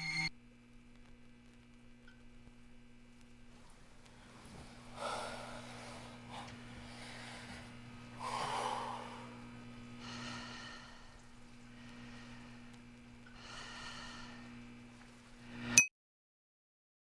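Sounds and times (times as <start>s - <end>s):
low electrical hum: 0.0s - 15.8s
person breathing heavily: 4.1s - 14.6s.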